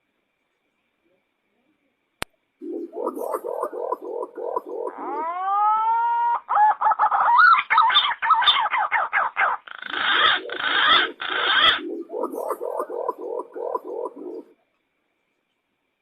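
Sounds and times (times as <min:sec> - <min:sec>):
pigeon whistled calls: 0:02.6 - 0:14.5.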